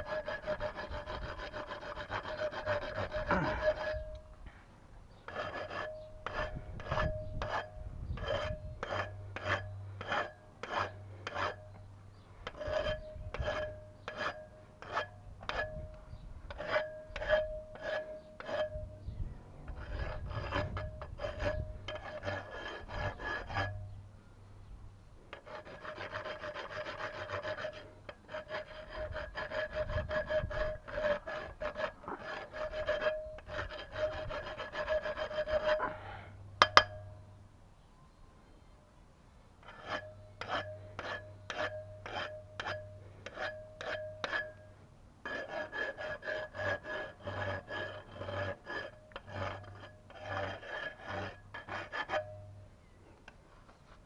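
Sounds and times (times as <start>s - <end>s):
hand saw strokes ringing: 36.6s - 37.2s, 39.7s - 44.7s, 45.3s - 52.6s.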